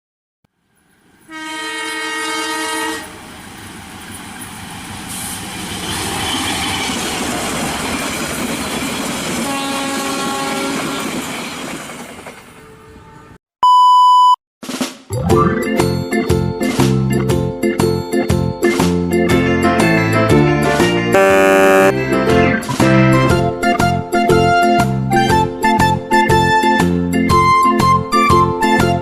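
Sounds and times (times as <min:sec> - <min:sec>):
train rumbling past: 0:00.8 - 0:13.4
train horn blowing: 0:01.3 - 0:03.1, 0:09.4 - 0:11.1, 0:21.1 - 0:22.0
loud steady beep: 0:13.6 - 0:14.4, 0:21.2 - 0:21.9.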